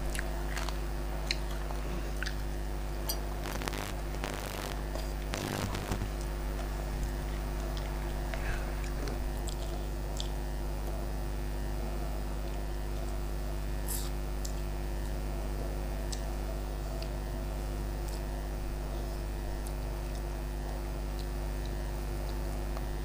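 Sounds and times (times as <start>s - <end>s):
person chewing: 0.0s - 10.9s
low hum: 3.0s - 12.2s.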